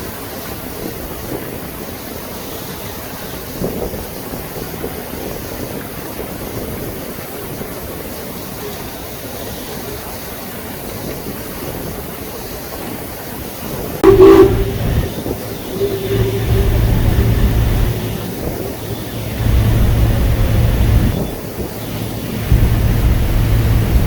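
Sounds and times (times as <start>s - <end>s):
loud horn blast: 14.0s - 24.0s
steady background rush: 14.0s - 24.0s.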